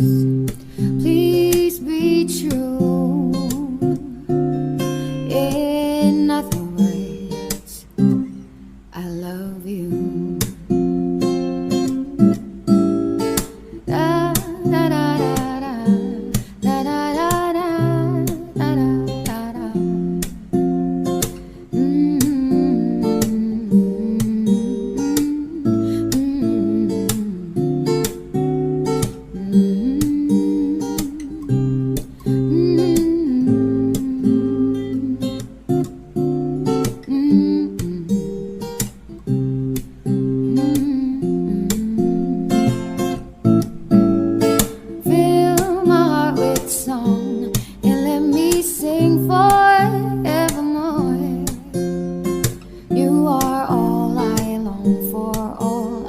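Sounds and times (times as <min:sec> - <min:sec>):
acoustic guitar music: 0:00.0 - 0:56.0.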